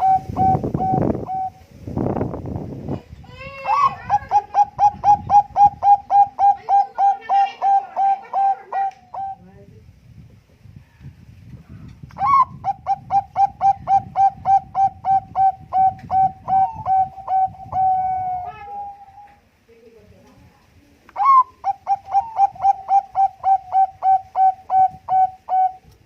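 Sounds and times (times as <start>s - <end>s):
dove cooing: 0.0s - 1.6s, 3.5s - 9.4s, 12.2s - 19.4s, 21.2s - 26.0s.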